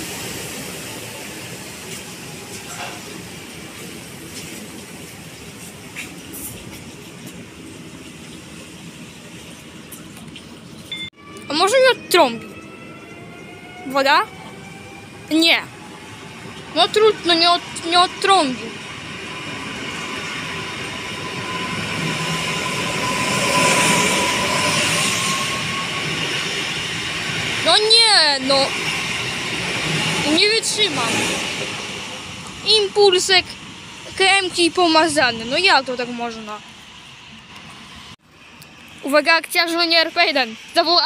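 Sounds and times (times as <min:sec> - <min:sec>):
train whine: 0:00.0 - 0:41.0
train wheels rumbling on rails: 0:11.5 - 0:41.0.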